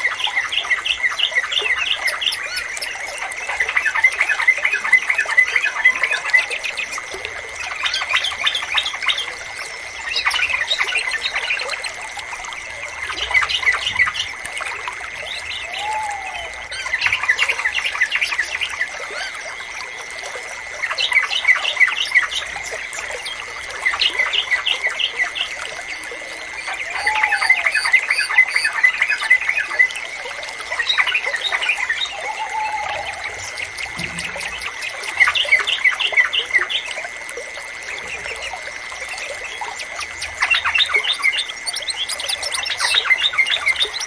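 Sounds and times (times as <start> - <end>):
faint trickling water: 0.0 - 44.0
bulbuls chattering calls: 32.1 - 36.8.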